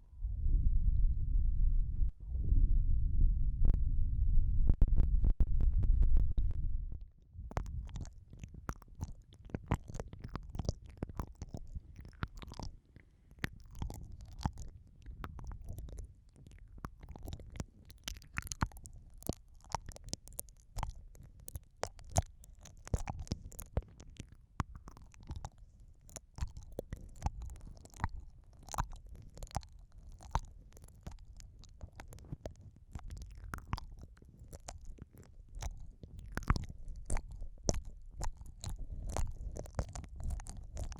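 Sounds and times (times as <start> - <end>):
low rumble of contact: 0.0 - 7.9
wet mouth sounds: 7.4 - 40.9.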